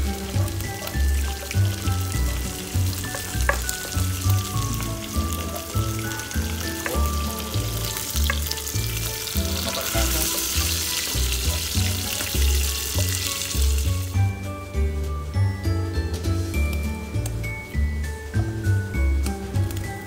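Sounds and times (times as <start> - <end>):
food sizzling in hot oil: 0.0 - 14.4
music with bass beat: 0.0 - 20.0.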